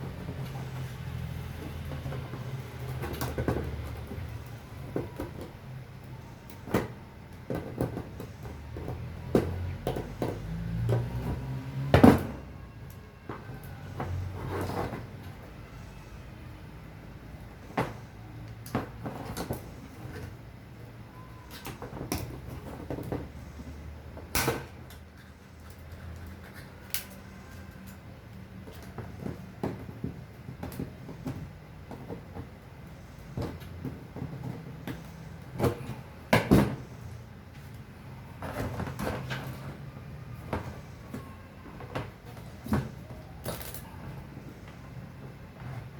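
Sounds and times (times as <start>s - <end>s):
hard objects knocking and clattering: 0.0s - 12.4s.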